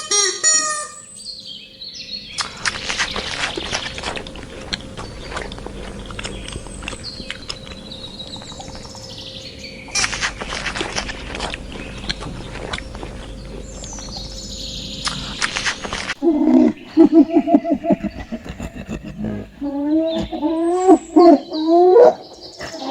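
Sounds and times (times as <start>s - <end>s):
bird calling: 0.0s - 22.9s
outdoor background hiss: 0.0s - 22.9s
low pulsing animal sound: 1.0s - 22.9s
sharp clicks: 2.4s - 8.9s, 9.9s - 16.2s.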